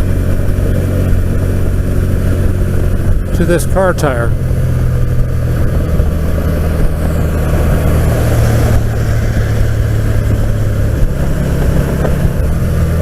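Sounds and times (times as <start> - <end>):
low engine drone: 0.0 - 13.0
wind and road noise: 0.0 - 13.0.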